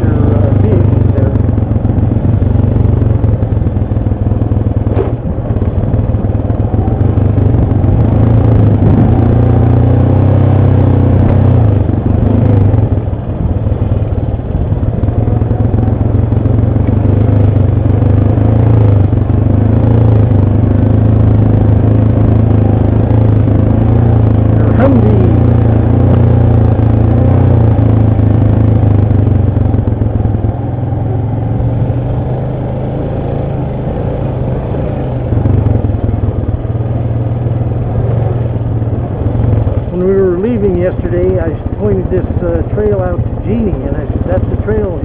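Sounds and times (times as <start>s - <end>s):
atv engine running: 0.0s - 45.0s
knocks and rattling over ground: 1.5s - 6.6s.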